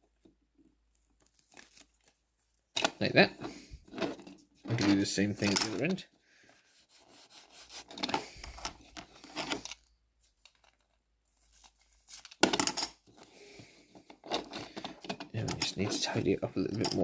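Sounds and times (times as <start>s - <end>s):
newspaper rustling and crinkling: 0.9s - 2.7s.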